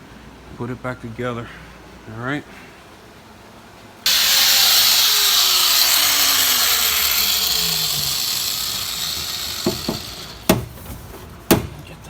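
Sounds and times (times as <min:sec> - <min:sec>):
polishing grinder spinning down: 0:04.1 - 0:10.4
grinder click: 0:04.1 - 0:10.6.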